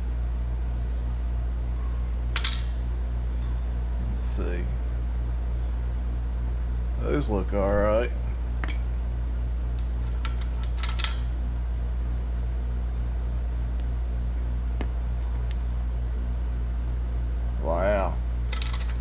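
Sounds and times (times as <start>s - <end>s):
low mechanical hum: 0.0s - 19.0s
light metallic clinks: 8.0s - 9.0s.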